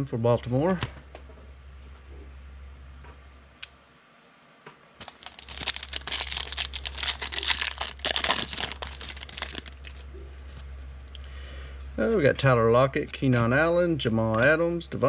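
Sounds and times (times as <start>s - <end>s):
plastic foil wrapper crinkling: 5.0s - 10.1s.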